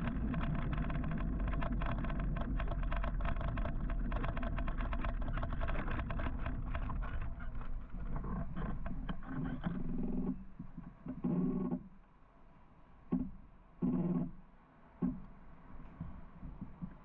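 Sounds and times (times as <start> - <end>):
rapid rattling clicks: 0.0 - 9.6
wind rumble on microphone: 0.0 - 10.9.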